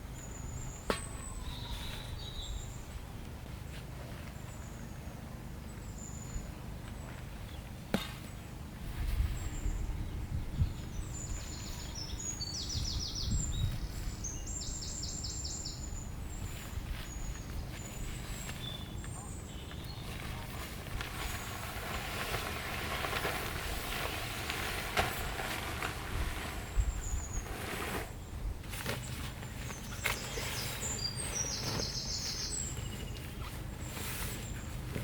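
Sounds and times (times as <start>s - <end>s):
wind buffeting microphone: 8.8s - 14.9s, 21.0s - 27.6s
small birds chirping: 9.2s - 21.7s, 26.6s - 35.0s.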